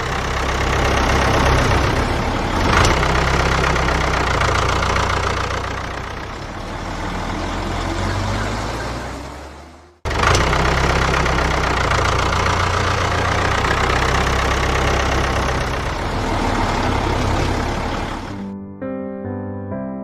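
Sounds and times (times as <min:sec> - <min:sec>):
vehicle engine rumbling: 0:00.0 - 0:18.5
piano music: 0:16.7 - 0:20.0.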